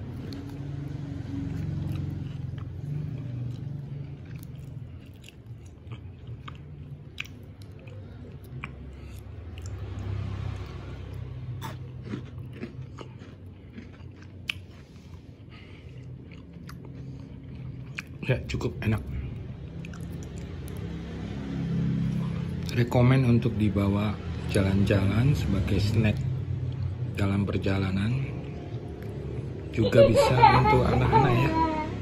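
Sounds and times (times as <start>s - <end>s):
person chewing crunchy biscuit: 0.0s - 20.9s.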